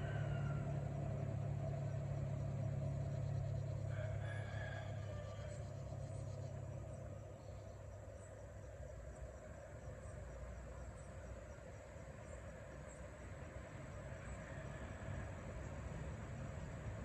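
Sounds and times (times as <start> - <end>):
faint insects chirping: 0.0 - 17.0.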